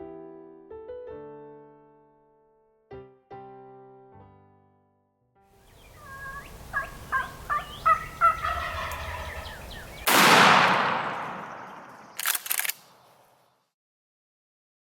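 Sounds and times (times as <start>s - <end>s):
wild turkey yelping and gobbling: 5.7s - 10.1s
shotgun blast echoing: 10.0s - 12.4s
rattle of sharp clicks: 11.9s - 13.0s.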